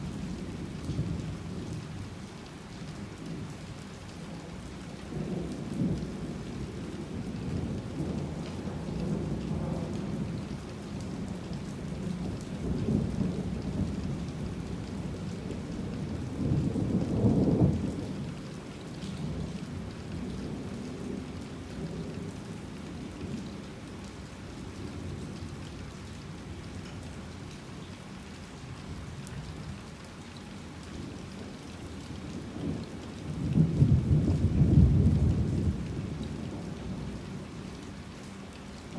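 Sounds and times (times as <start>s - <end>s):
steady rain: 0.0s - 38.9s
rolling thunder rumbles: 32.4s - 37.3s.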